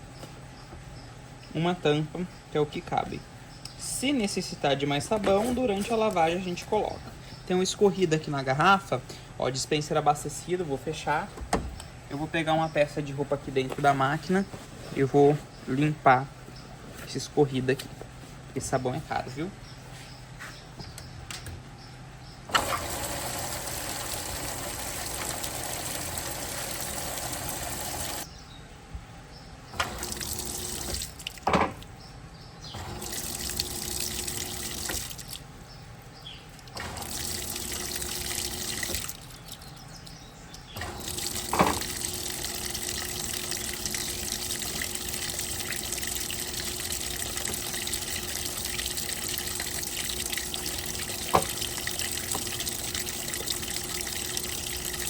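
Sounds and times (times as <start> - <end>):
water rushing into washing machine: 22.5 - 28.3, 29.8 - 31.5, 32.8 - 35.4, 36.6 - 39.6, 40.8 - 55.0.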